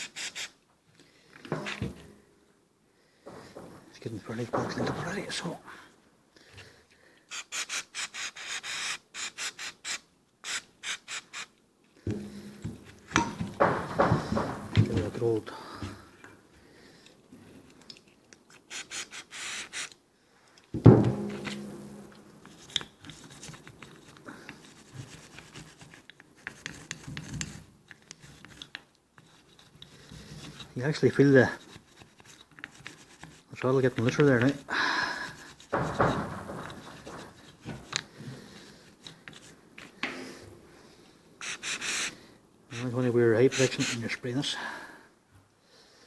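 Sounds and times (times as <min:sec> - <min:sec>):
soft knocks: 0:03.3 - 0:05.4, 0:12.1 - 0:15.2, 0:35.7 - 0:37.9
brush scrubbing metal: 0:21.2 - 0:34.6, 0:41.4 - 0:44.2
wire brush scrubbing metal: 0:41.4 - 0:44.2.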